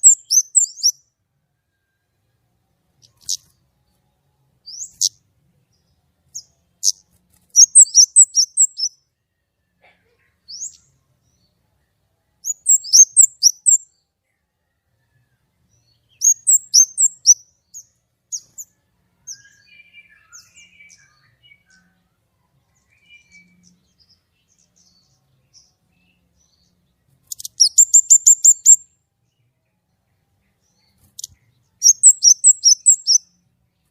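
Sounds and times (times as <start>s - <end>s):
bird trill: 0.0s - 1.0s, 7.6s - 9.0s, 12.4s - 13.9s, 15.8s - 22.0s, 26.4s - 28.9s, 30.6s - 33.4s
songbird chirping high-pitched: 0.0s - 9.8s, 10.4s - 33.9s.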